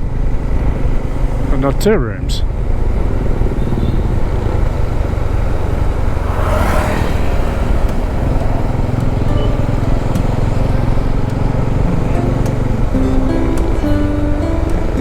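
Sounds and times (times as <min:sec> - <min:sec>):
motorcycle engine drone: 0:00.0 - 0:15.0
wind rush on microphone: 0:02.5 - 0:09.4.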